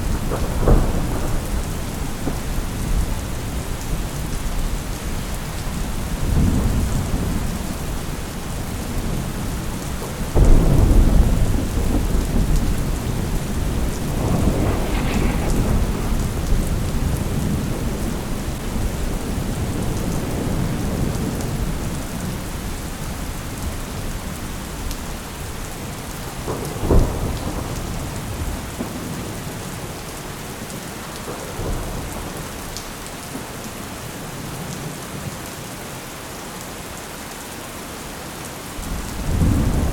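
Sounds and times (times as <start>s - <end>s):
rolling thunder: 0.0s - 29.6s, 38.8s - 39.9s
steady rain: 0.0s - 39.9s.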